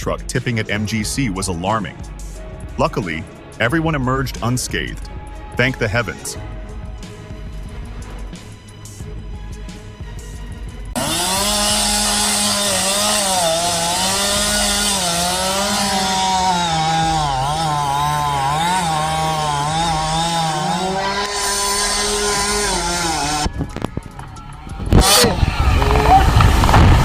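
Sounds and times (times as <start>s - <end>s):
chainsaw cutting wood: 10.9s - 27.0s.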